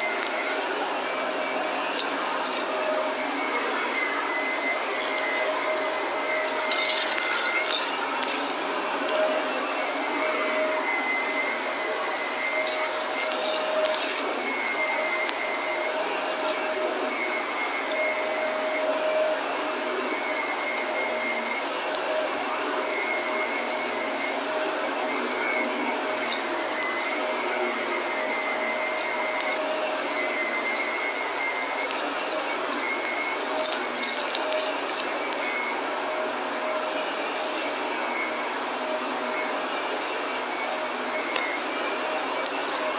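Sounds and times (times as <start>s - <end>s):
vacuum cleaner whining: 0.0s - 42.9s
debris crunching in vacuum: 11.8s - 19.0s, 19.7s - 27.2s, 28.6s - 37.9s.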